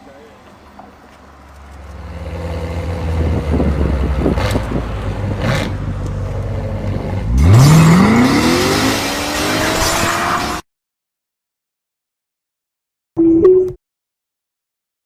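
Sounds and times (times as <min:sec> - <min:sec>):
car engine revving: 0:01.8 - 0:10.6.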